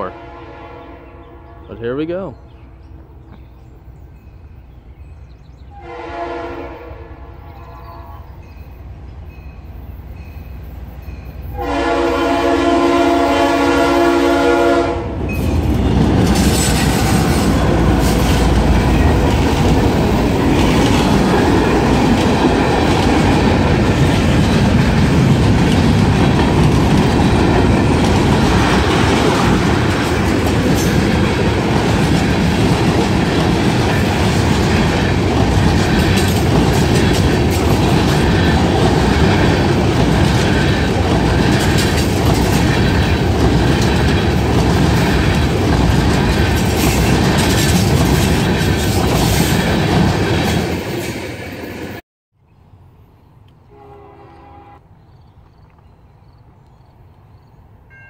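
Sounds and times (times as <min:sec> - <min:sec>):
locomotive air horn: 0:00.0 - 0:01.7, 0:05.8 - 0:08.4, 0:11.5 - 0:15.2, 0:53.6 - 0:54.9
locomotives rumbling past: 0:07.2 - 0:52.0.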